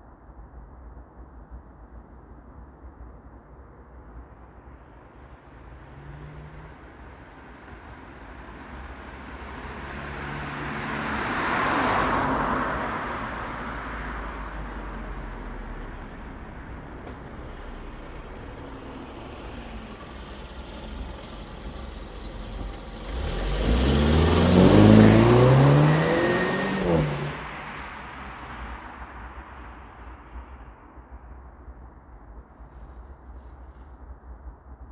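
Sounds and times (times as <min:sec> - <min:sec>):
car engine accelerating hard: 0:09.6 - 0:29.0.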